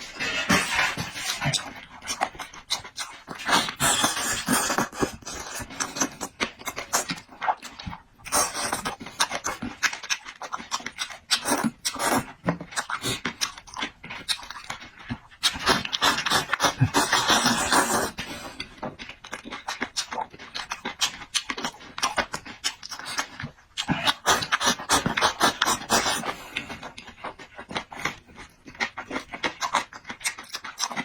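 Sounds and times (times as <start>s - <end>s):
wet chewing with smacking: 0.0s - 31.0s
slurping: 15.4s - 18.7s.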